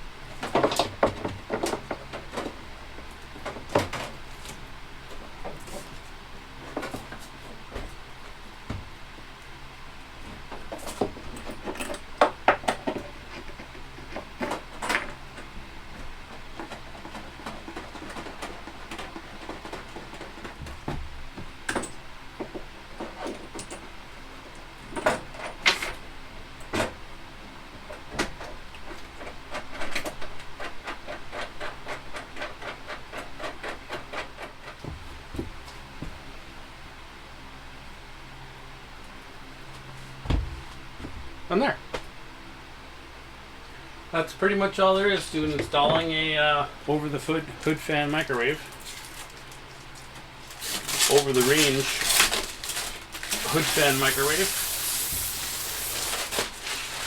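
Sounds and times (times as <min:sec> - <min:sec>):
microwave knocking and clunking: 0:08.6 - 0:09.0, 0:40.2 - 0:42.0.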